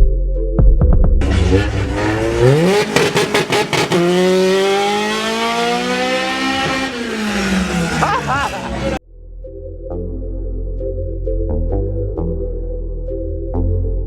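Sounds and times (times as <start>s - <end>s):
car engine revving hard: 1.2s - 9.0s.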